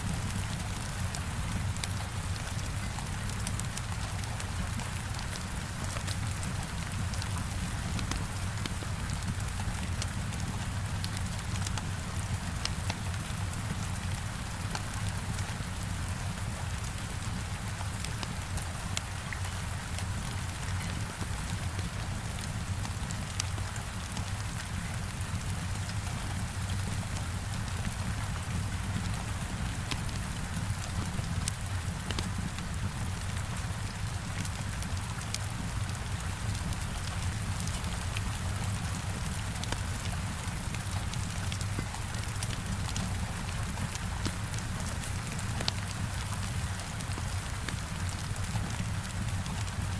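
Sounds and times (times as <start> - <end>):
heavy rain against a window: 0.0 - 49.9
wood fire crackling: 24.1 - 49.9.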